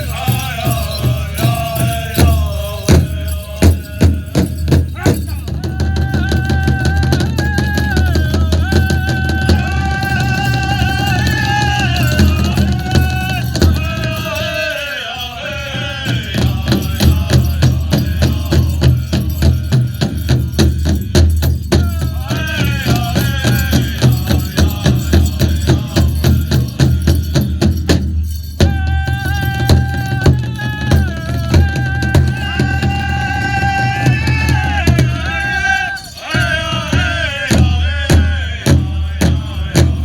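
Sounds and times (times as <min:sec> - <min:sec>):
big drum fast steady beat: 0:00.0 - 0:14.6, 0:15.5 - 0:40.0
singers high chanting: 0:00.0 - 0:40.0.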